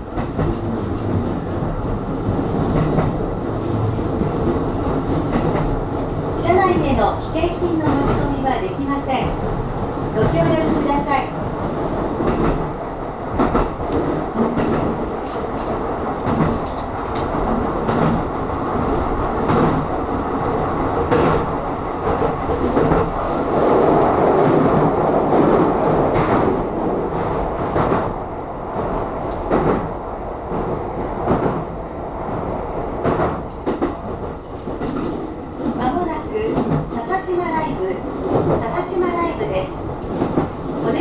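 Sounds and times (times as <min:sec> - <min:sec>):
train wheels and motors rumbling: 0:00.0 - 0:41.0
wheels clacking over rail joints: 0:00.1 - 0:24.0.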